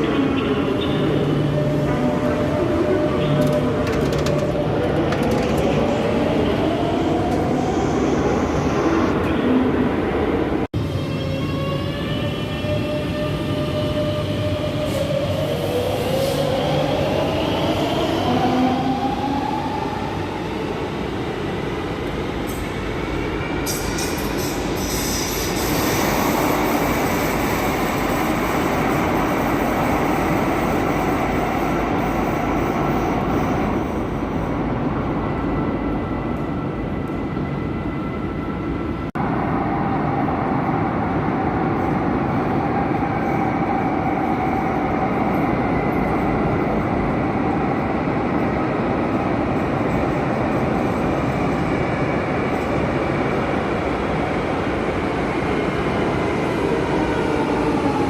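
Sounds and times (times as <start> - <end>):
train wheels and motors: 3.2 - 6.0.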